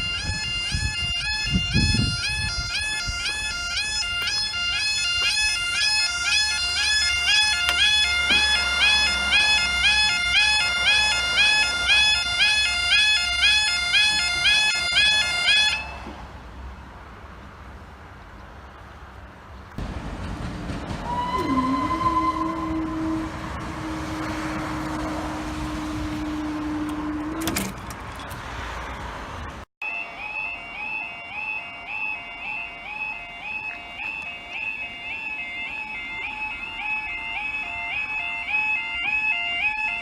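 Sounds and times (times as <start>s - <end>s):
level crossing alarm wailing: 0.0s - 16.1s, 21.0s - 27.7s, 29.8s - 40.0s
long steady horn tone: 0.0s - 16.2s, 21.0s - 27.7s, 29.8s - 40.0s.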